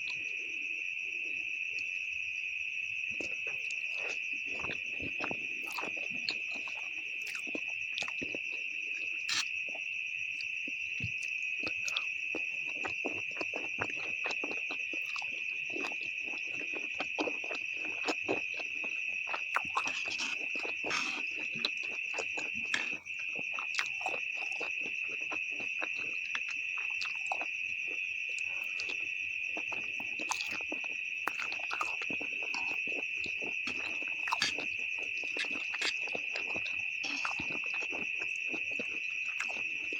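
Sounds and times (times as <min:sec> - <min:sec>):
chewing and slurping noodles: 0:03.1 - 0:39.9.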